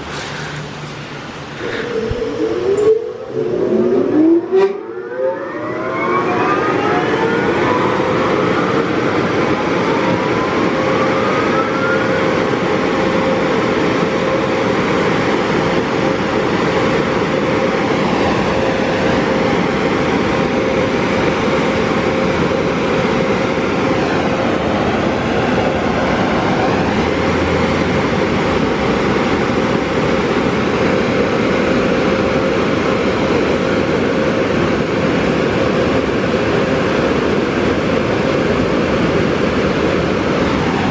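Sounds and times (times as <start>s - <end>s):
air dryer blowers rushing: 0.0s - 5.0s
blowers spinning up whine: 0.0s - 40.9s.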